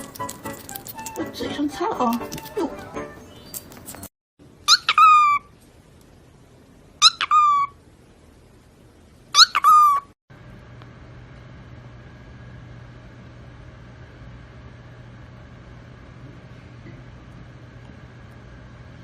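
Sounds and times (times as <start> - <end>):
pet animal high cry: 4.7 - 5.5, 7.0 - 7.8, 9.3 - 10.1
steady low hum: 10.3 - 19.0.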